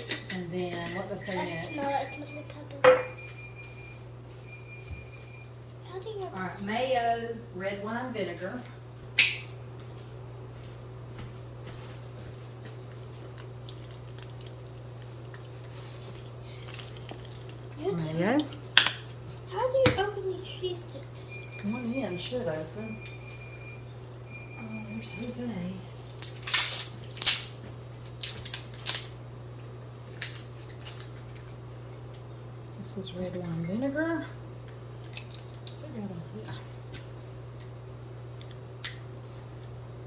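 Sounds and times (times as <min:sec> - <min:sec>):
steady low hum: 0:00.0 - 0:40.0
plastic wrapper crinkling and tearing: 0:26.1 - 0:29.2.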